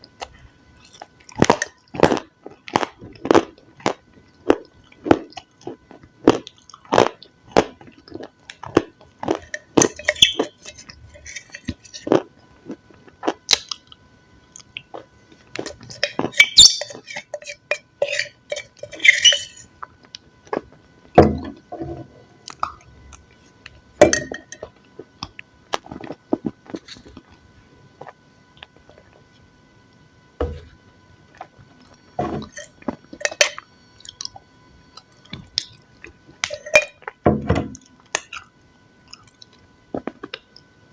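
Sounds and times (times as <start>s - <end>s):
chewing with crunching bites: 0.1s - 20.8s, 22.4s - 23.9s, 31.3s - 40.7s.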